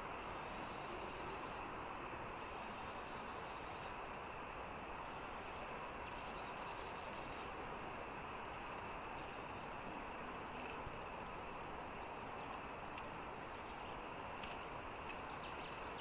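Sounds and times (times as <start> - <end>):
background rushing noise: 0.0 - 16.0
small birds chirping: 5.0 - 7.6, 8.8 - 16.0.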